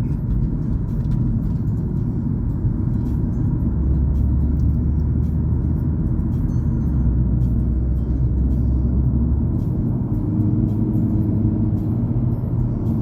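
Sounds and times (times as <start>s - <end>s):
car driving heard from cabin: 0.0s - 13.0s.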